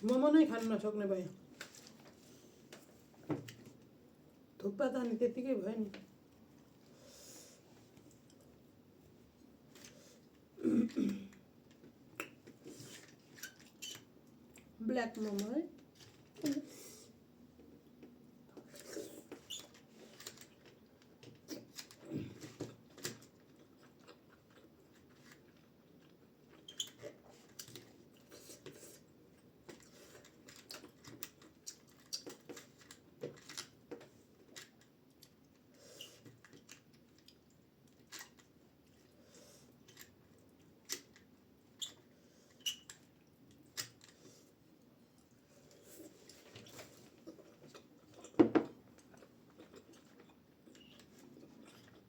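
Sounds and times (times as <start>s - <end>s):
person chewing food: 18.6s - 33.0s, 45.2s - 52.0s.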